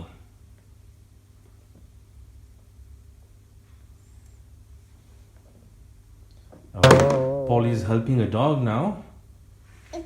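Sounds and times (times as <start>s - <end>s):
steady low hum: 5.8s - 8.3s.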